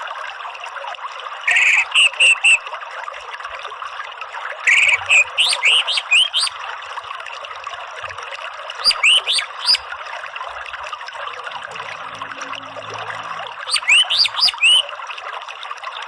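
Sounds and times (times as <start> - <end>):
water trickling: 0.0 - 16.0
bird chirping: 4.7 - 6.5, 8.8 - 9.8, 13.6 - 14.8.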